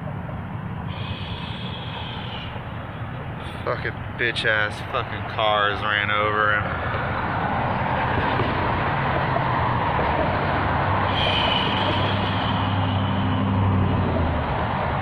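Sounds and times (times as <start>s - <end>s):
road traffic noise: 0.0s - 15.0s
vehicle engine passing close: 6.7s - 15.0s.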